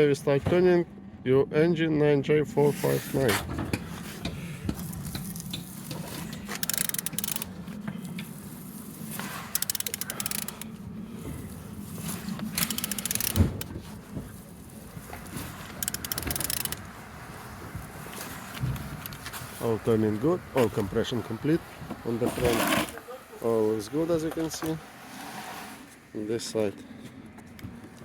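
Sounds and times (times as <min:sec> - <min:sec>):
steady low hum: 0:00.0 - 0:22.1
ratchet wrench clicking: 0:04.8 - 0:07.5, 0:09.5 - 0:10.7, 0:12.6 - 0:13.7, 0:15.8 - 0:16.8.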